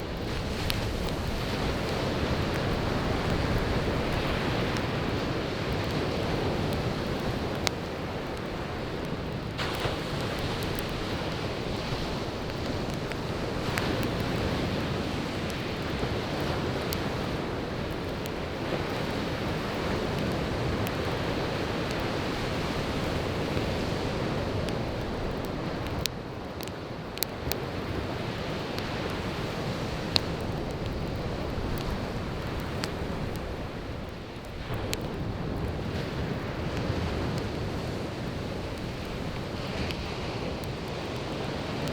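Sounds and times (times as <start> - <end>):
burning firewood crackling: 0.0 - 41.9
surf washing onto beach: 0.0 - 41.9.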